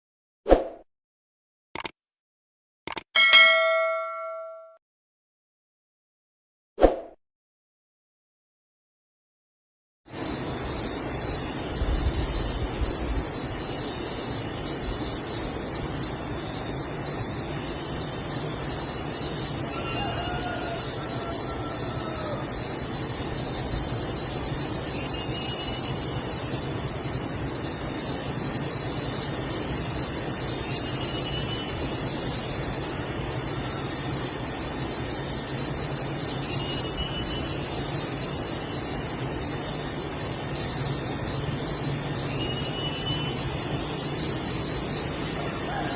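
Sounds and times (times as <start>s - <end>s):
insects droning: 10.1s - 45.9s
insect pulsing trill: 12.3s - 45.9s.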